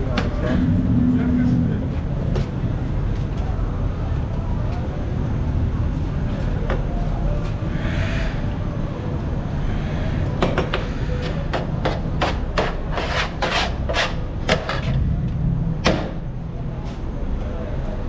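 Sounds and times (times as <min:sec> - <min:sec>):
steady low rumble: 0:00.0 - 0:03.2, 0:14.2 - 0:18.0
sharp knocks: 0:15.8 - 0:16.3.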